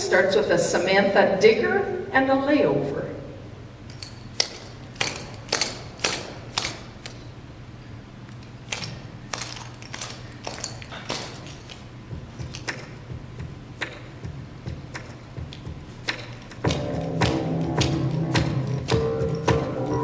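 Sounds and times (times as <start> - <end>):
low steady hum: 0.0 - 20.0
sharp clicks and taps: 3.9 - 7.2.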